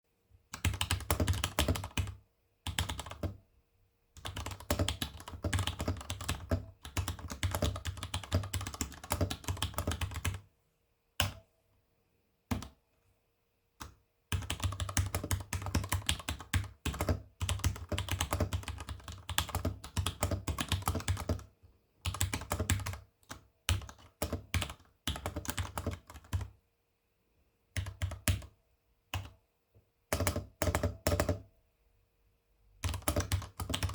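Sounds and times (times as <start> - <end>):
mechanical keyboard typing: 0.6 - 3.4, 4.2 - 10.4, 13.8 - 26.5, 27.8 - 28.5, 30.1 - 31.5, 32.8 - 33.9.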